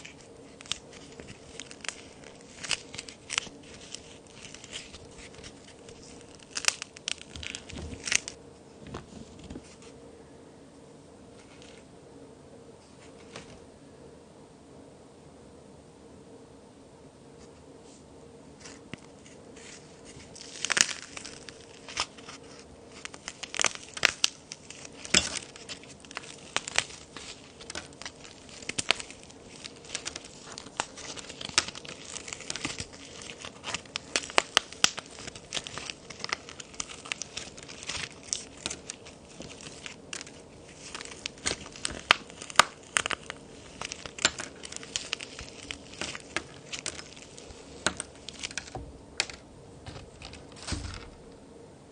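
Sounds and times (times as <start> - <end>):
toy cookies snapping: 0.0 - 8.4, 22.9 - 49.4
gritty crumbling: 20.1 - 51.2.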